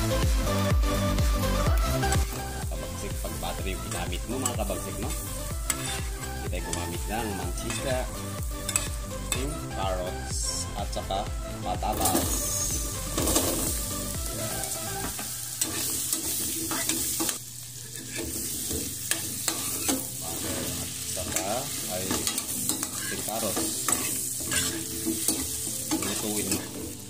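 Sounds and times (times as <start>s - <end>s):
vegetables sizzling in butter: 0.0s - 27.0s
spoon scraping a pan: 3.9s - 7.0s, 7.6s - 9.5s, 12.0s - 27.0s.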